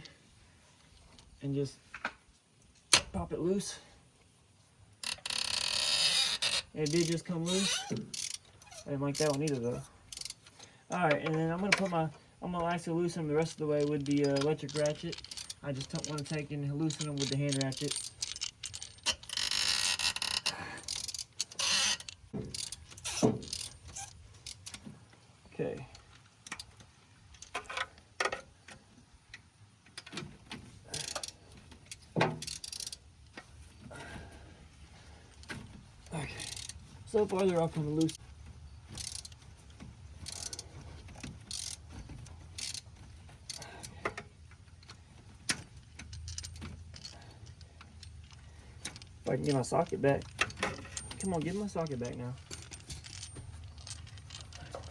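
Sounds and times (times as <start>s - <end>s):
ratchet clicks: 5.0s - 10.5s, 13.8s - 24.8s, 30.9s - 33.0s, 35.4s - 38.2s, 38.8s - 51.5s
socket and ratchet clinking: 5.0s - 11.9s, 13.8s - 24.8s, 30.9s - 33.4s, 35.3s - 54.9s.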